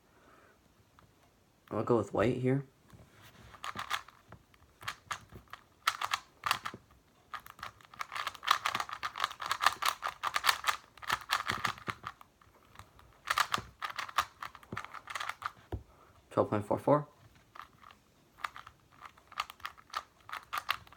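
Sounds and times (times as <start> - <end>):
plastic puzzle cube clacking: 3.4 - 15.9, 17.2 - 20.9.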